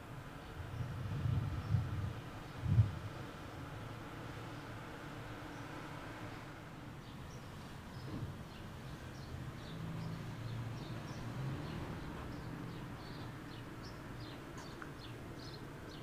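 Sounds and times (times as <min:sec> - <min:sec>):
small birds chirping: 0:07.0 - 0:16.0.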